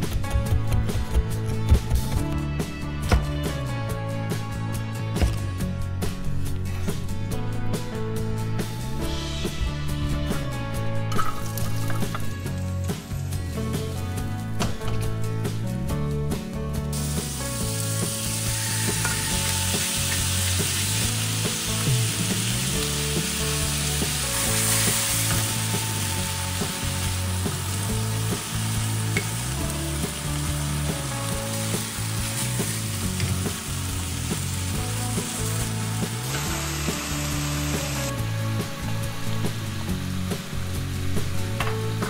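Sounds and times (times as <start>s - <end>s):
meat sizzling in a wok: 16.9s - 42.0s.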